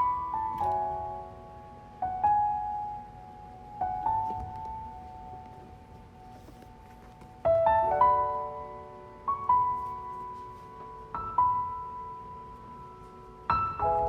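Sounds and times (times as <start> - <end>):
slow solo piano chords: 0.0 - 14.0.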